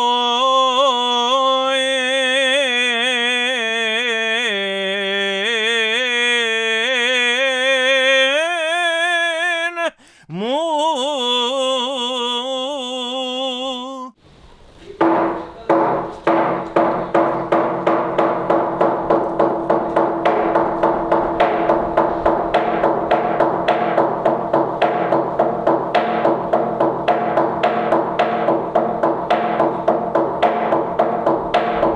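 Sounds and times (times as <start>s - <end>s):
man chanting: 0.0s - 14.2s
rhythmic striking: 15.0s - 31.9s.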